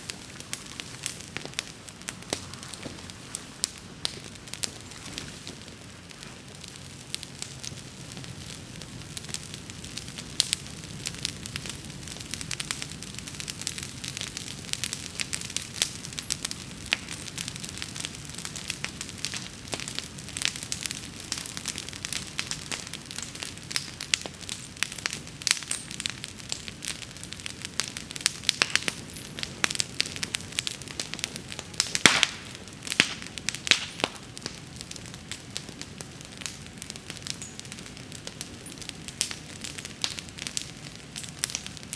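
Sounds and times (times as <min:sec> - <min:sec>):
bonfire crackling and popping: 0:00.0 - 0:41.9
low rush of flames: 0:00.0 - 0:41.9.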